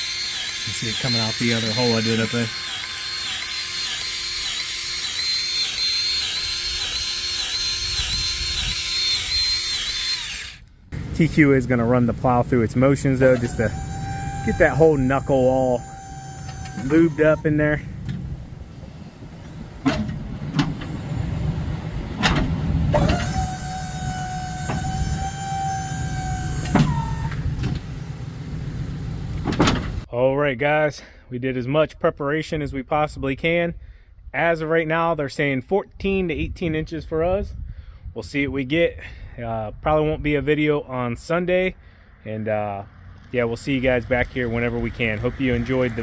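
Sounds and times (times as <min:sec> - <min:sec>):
electric grease gun motor whining: 0:00.0 - 0:11.3, 0:12.9 - 0:17.9, 0:23.0 - 0:27.9
truck engine running: 0:10.9 - 0:23.1, 0:43.0 - 0:46.0.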